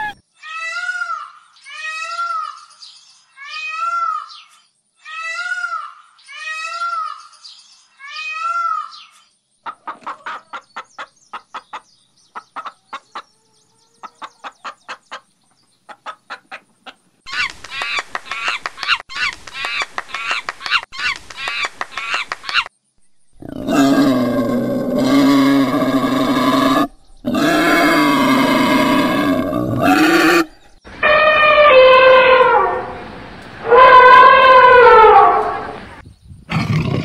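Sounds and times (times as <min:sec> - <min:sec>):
hen clucking: 0:00.0 - 0:00.2, 0:09.6 - 0:19.3
loud harsh animal calling: 0:00.0 - 0:02.5, 0:23.4 - 0:33.0, 0:33.6 - 0:35.8
rising and falling animal calls: 0:00.0 - 0:02.5, 0:23.4 - 0:33.0, 0:33.6 - 0:35.8.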